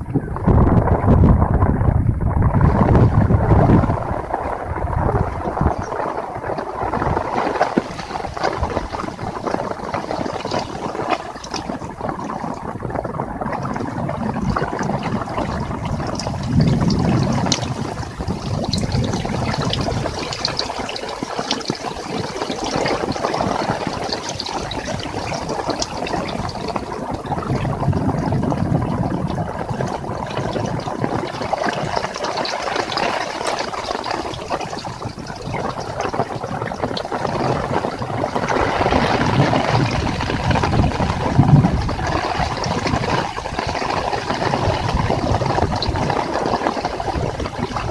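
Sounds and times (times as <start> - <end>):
low rumble: 0.0 - 21.3
heavy rain falling: 0.0 - 47.9.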